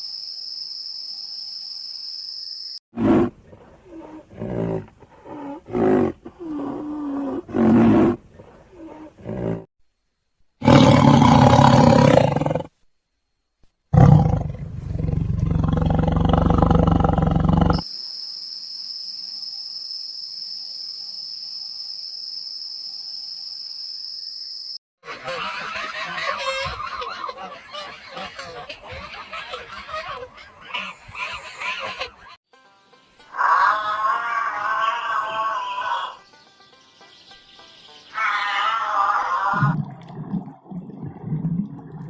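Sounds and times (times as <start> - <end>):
big cat roaring: 3.0 - 9.7, 10.6 - 12.7, 13.9 - 17.8.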